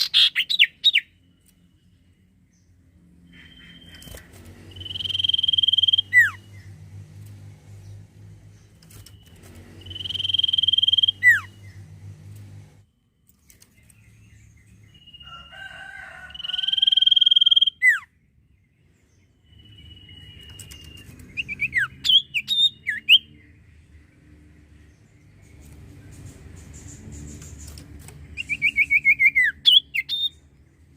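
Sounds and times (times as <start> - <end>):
low steady hum: 1.0 - 15.2
bird singing whistled phrases: 4.7 - 6.4, 9.8 - 11.5, 28.4 - 30.4.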